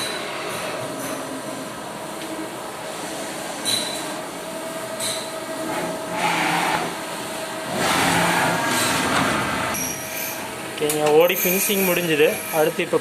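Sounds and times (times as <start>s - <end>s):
metal cutting noise: 7.6s - 10.6s.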